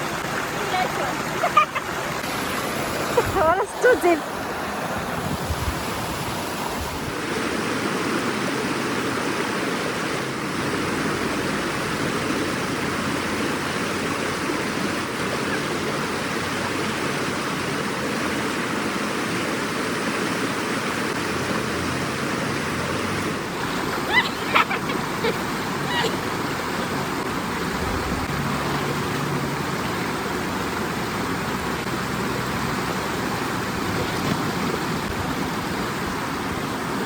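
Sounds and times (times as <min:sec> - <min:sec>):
river water rushing over rocks: 0:00.0 - 0:37.0.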